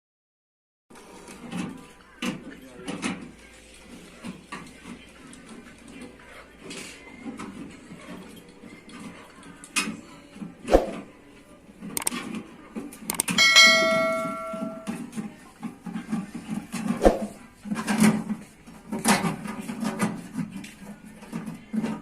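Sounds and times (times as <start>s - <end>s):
metal ringing like a bell: 13.3s - 15.0s.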